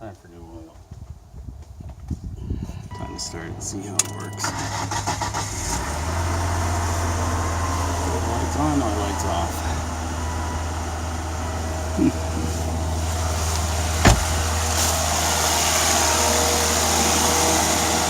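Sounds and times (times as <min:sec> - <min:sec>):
car engine idling: 0:02.9 - 0:18.0.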